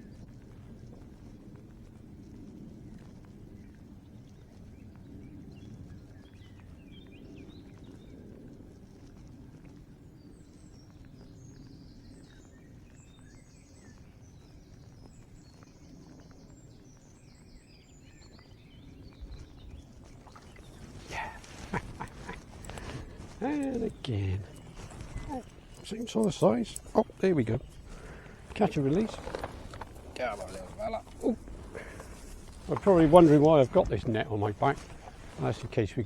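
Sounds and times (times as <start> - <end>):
birdsong chirping: 9.8 - 36.0.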